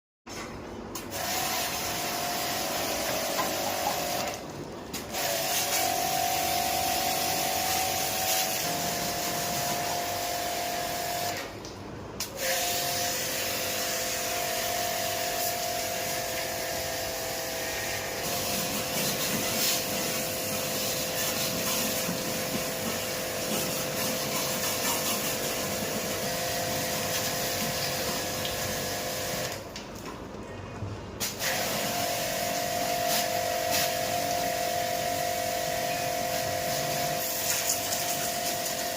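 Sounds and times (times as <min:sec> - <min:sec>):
pressure washer motor whine: 0:01.1 - 0:04.4, 0:05.1 - 0:11.5, 0:12.6 - 0:24.6, 0:31.5 - 0:38.9
pressure washer spray hiss: 0:05.2 - 0:11.3, 0:17.8 - 0:29.5, 0:31.2 - 0:34.6, 0:36.3 - 0:38.9.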